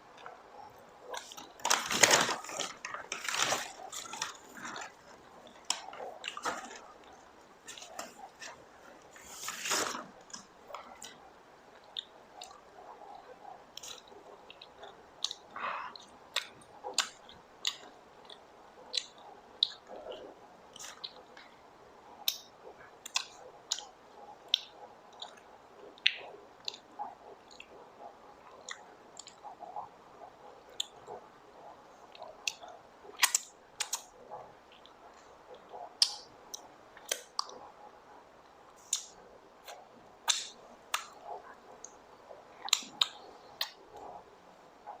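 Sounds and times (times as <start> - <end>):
chewing popcorn: 0.0 - 45.0
mouth clicks: 22.2 - 37.7, 38.4 - 45.0.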